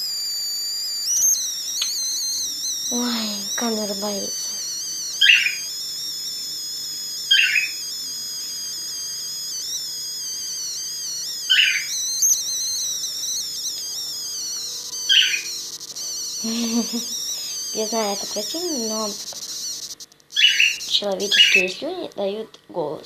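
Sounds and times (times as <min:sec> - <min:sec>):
sharp bird chirps: 0:00.0 - 0:21.7
parrots warbling: 0:04.5 - 0:05.6, 0:07.3 - 0:07.8, 0:11.5 - 0:11.9, 0:14.9 - 0:15.5, 0:20.4 - 0:21.7.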